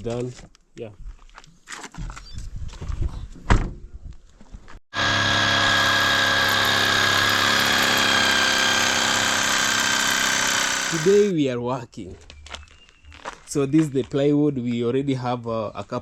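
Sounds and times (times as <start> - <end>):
power tool motor whining: 4.9 - 11.3.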